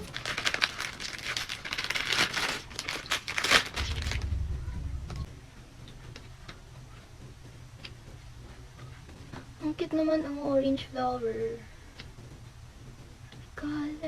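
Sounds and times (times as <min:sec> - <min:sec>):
plastic packaging crinkling: 0:00.0 - 0:04.4.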